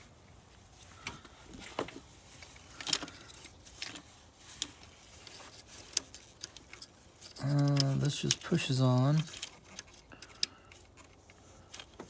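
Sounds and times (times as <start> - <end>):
metallic clicks of tools: 4.6 - 12.0.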